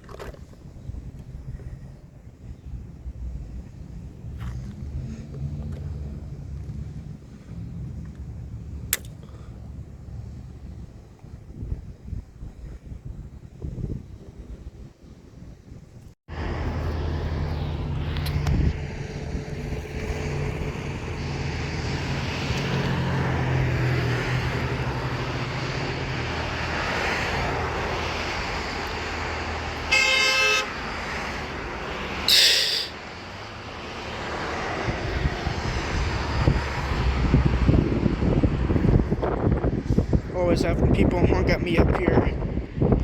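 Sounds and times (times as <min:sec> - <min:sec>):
road traffic engine drone: 0:00.1 - 0:12.3, 0:14.2 - 0:43.0
car horn honk: 0:29.9 - 0:30.8.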